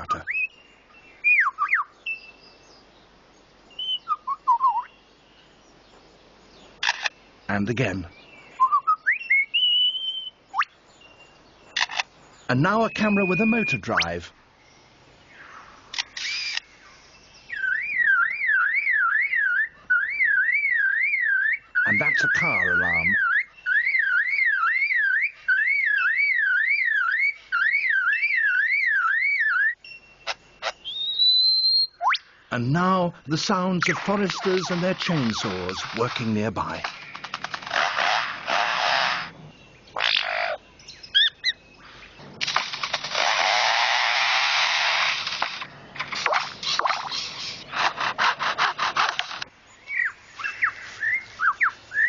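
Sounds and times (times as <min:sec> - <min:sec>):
bird mimicking car alarm: 0:11.7 - 0:14.2, 0:17.5 - 0:32.2, 0:32.8 - 0:39.3, 0:39.9 - 0:41.6
short bird chirps: 0:15.4 - 0:20.1
bird mimicking chainsaw rasps: 0:16.0 - 0:16.7, 0:33.0 - 0:39.3, 0:42.5 - 0:49.5.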